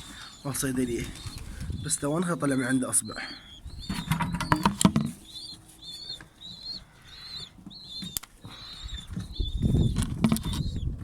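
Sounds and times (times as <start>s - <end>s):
bird chicks peeping: 0.0s - 11.0s
handling clicks and knocks: 3.9s - 5.2s.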